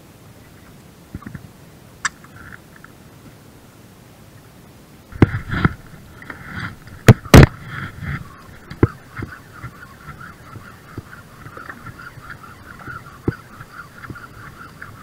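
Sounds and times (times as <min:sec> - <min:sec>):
sharp knocks: 0:07.0 - 0:07.7.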